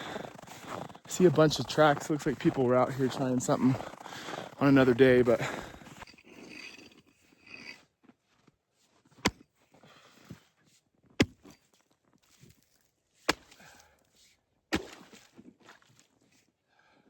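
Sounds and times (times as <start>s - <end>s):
chopping strikes into ice: 11.2s - 11.6s, 13.3s - 13.7s, 14.7s - 15.2s.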